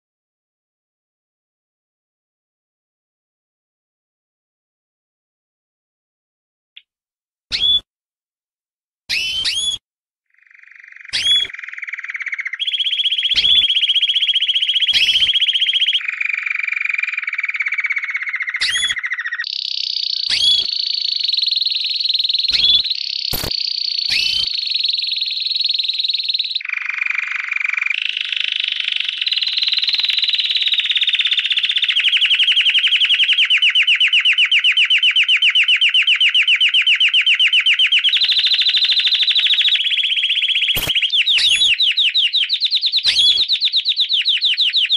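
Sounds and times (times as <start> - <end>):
lovebird chattering trill: 10.4 - 44.9.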